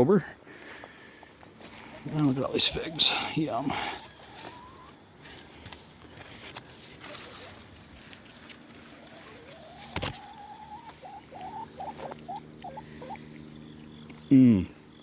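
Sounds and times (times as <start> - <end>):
insects trilling: 0.0 - 15.0
animal calling: 1.8 - 5.0, 9.0 - 14.8.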